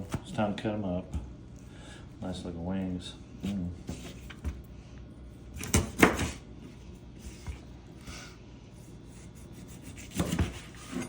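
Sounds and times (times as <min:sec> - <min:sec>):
knife chopping on cutting board: 0:05.6 - 0:06.4, 0:09.5 - 0:11.0.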